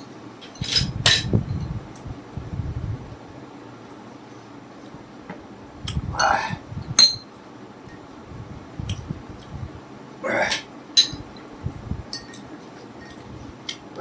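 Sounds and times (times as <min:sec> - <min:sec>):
spoon clinking against bowl: 0:11.0 - 0:11.2, 0:12.1 - 0:12.4.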